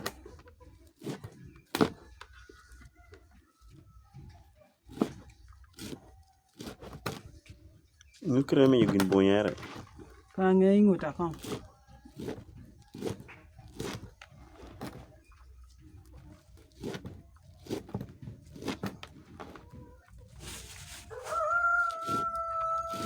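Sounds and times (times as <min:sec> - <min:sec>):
chickens clucking: 0:19.6 - 0:23.0
chicken long steady call: 0:21.1 - 0:23.0.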